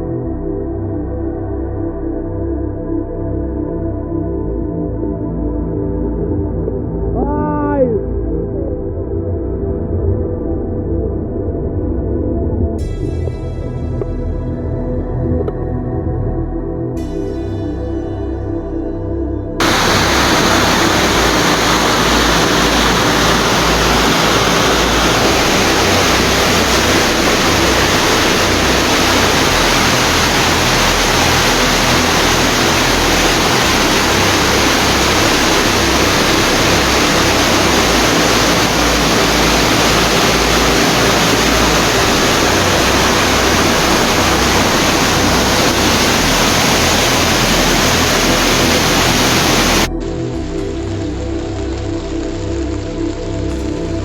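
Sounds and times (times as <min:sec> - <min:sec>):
floodwater rushing: 0:19.6 - 0:49.9.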